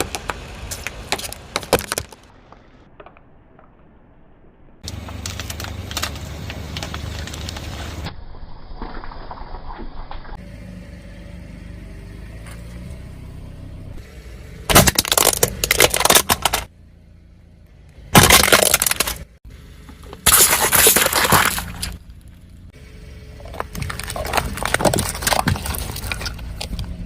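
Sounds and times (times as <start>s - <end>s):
car tyre crushing brittle objects: 0.0s - 3.9s, 4.8s - 8.1s, 14.6s - 16.7s, 18.0s - 27.0s
car low steady hum: 4.7s - 8.1s, 10.4s - 27.0s.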